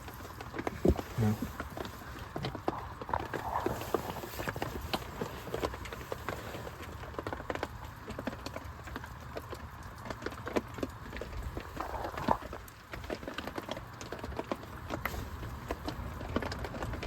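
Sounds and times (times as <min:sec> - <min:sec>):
heavy rain on plastic tarp: 0:00.0 - 0:17.0.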